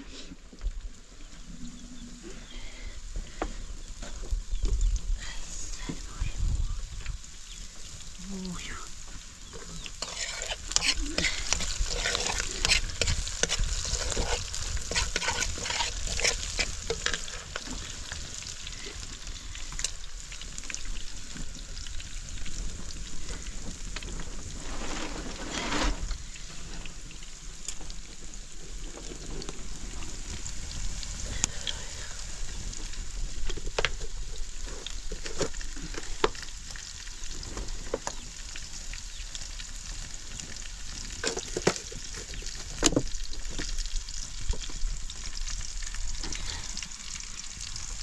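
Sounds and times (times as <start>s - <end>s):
food sizzling: 0.8s - 48.0s
utensil scraping in a pan: 9.4s - 18.6s, 24.3s - 27.0s.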